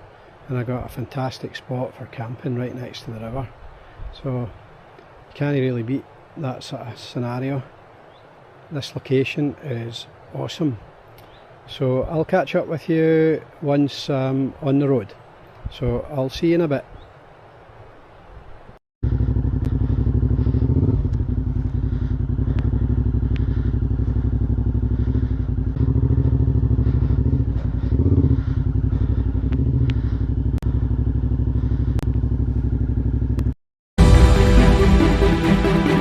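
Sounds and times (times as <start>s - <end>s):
motorcycle engine running: 19.0s - 33.6s
music: 34.0s - 36.0s.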